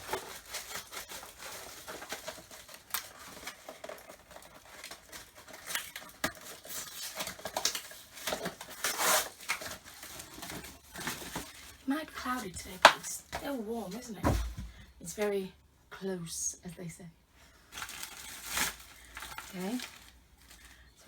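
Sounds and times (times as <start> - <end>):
plastic packaging crinkling: 0.0 - 14.9, 17.7 - 21.0
plastic parts knocking: 12.6 - 14.9.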